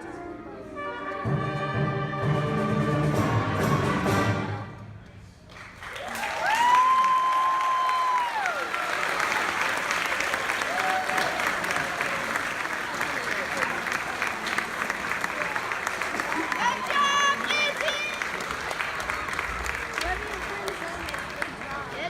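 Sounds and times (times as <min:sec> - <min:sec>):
concert band playing: 0:01.0 - 0:04.9
audience applause: 0:05.5 - 0:22.0.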